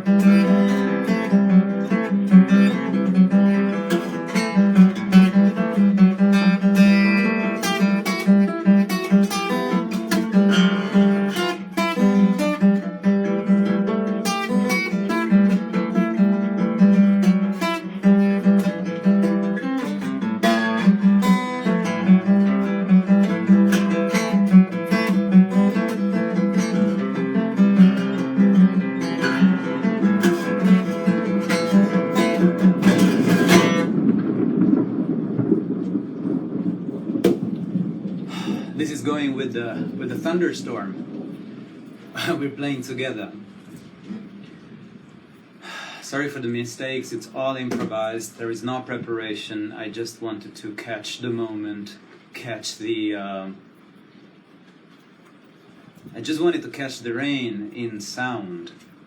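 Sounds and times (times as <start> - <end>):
acoustic guitar: 0.0 - 46.2.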